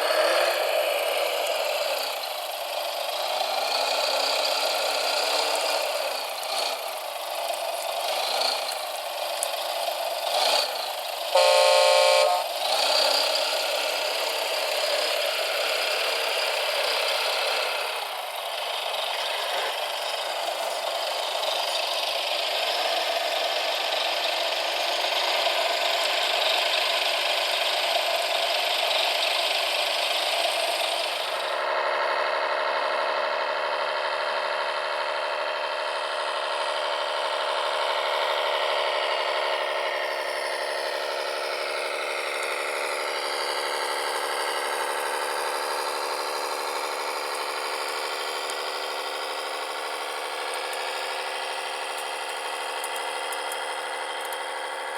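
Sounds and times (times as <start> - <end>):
small electric motors whining: 3.5 - 18.1.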